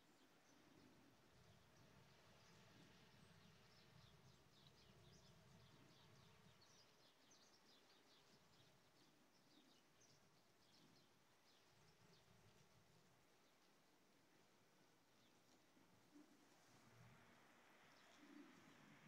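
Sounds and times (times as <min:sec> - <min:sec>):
bird chirping: 0:00.0 - 0:12.6
faint low hum: 0:00.0 - 0:19.0.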